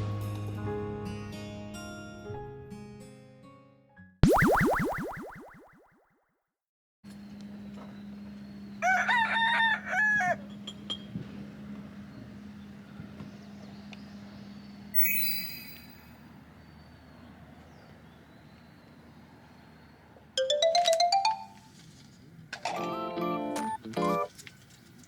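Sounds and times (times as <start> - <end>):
bright melodic jingle tones: 15.0 - 16.2, 20.4 - 21.7.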